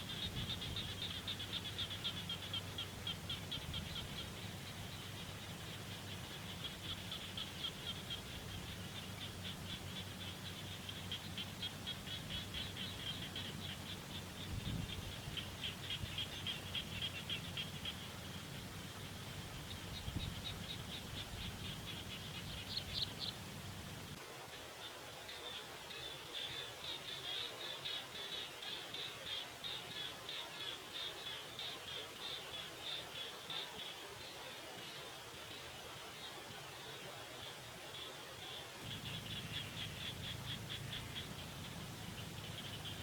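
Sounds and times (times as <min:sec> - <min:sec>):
small animal chirping pulses: 0:38.8 - 0:43.0
steady low hum: 0:38.8 - 0:43.0.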